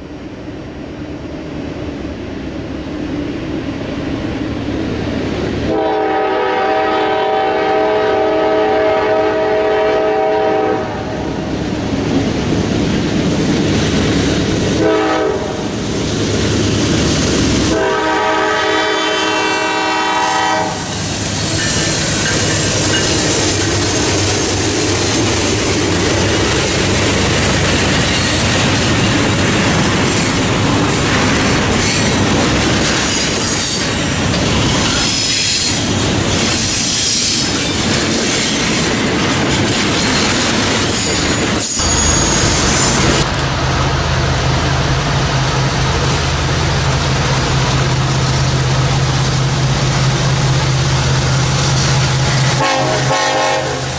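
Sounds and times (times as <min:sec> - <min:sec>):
locomotive air horn: 0:05.7 - 0:11.1, 0:14.8 - 0:15.7, 0:17.7 - 0:21.0, 0:52.0 - 0:53.9
train wheels clickety-clack: 0:20.6 - 0:53.9.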